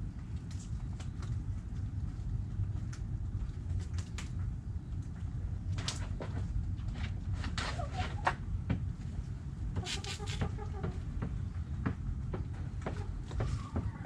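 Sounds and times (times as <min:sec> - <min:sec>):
steady low rumble: 0:00.0 - 0:07.6, 0:08.3 - 0:14.0
hens clucking: 0:09.7 - 0:11.5, 0:12.8 - 0:14.0.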